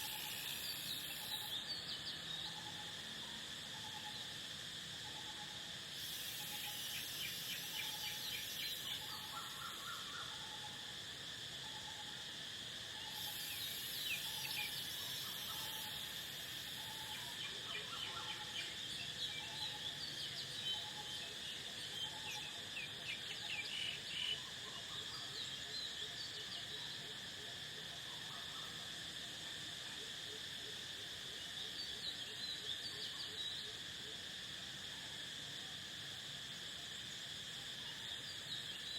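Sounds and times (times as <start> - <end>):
high buzzing hiss: 0.0 - 2.4, 3.0 - 10.2, 12.2 - 20.7
crickets and insects chirring: 0.0 - 38.9.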